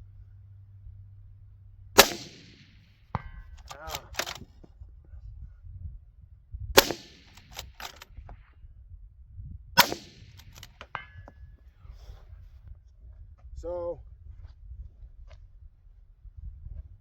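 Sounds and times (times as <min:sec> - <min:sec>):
suppressed rifle shots: 0:02.0 - 0:04.5, 0:06.8 - 0:08.1, 0:09.8 - 0:11.2
metallic clicks: 0:03.6 - 0:04.4, 0:06.8 - 0:08.0, 0:09.8 - 0:11.2.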